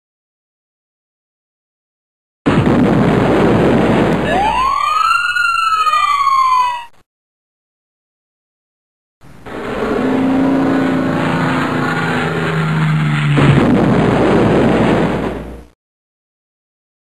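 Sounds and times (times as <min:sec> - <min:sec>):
vehicle engine hum: 0:09.2 - 0:15.7.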